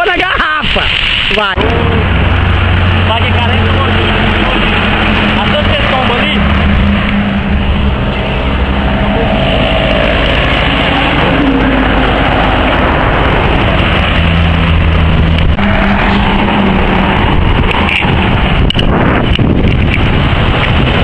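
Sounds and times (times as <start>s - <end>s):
continuous rushing noise: 0.0s - 21.0s
vehicle engine running: 1.6s - 21.0s.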